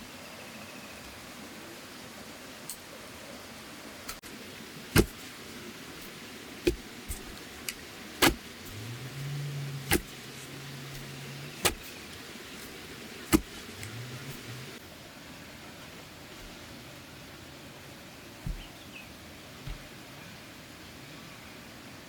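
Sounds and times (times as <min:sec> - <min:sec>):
blade chopping bamboo: 0:04.9 - 0:14.8, 0:18.5 - 0:18.7.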